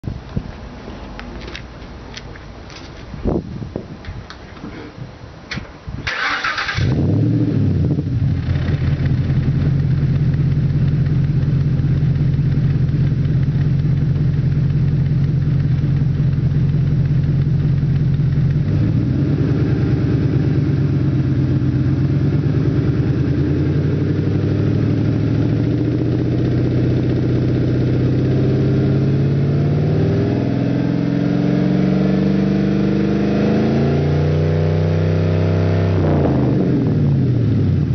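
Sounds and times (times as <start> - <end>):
engine cranking: 6.0 - 7.1
car engine idling: 7.4 - 28.3.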